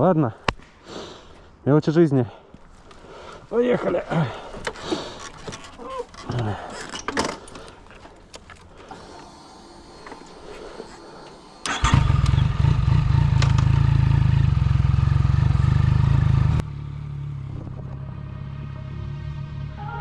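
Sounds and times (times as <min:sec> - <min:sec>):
motorcycle engine starting and running: 0:11.6 - 0:20.0.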